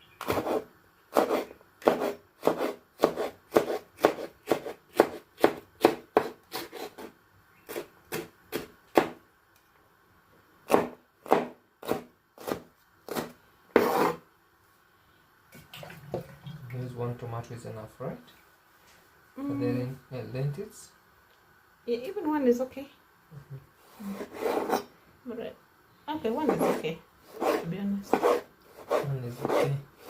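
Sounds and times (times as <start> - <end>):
knife chopping on cutting board: 0.2 - 7.1, 7.7 - 9.2, 10.7 - 14.2, 27.4 - 29.7.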